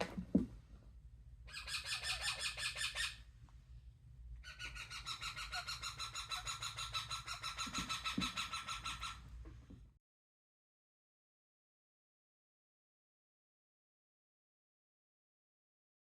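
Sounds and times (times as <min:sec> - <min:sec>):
parrot harsh calls: 0:01.5 - 0:03.2, 0:04.4 - 0:09.3.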